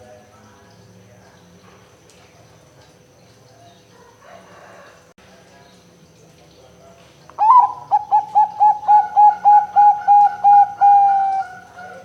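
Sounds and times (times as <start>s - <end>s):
dove cooing: 7.4s - 12.0s.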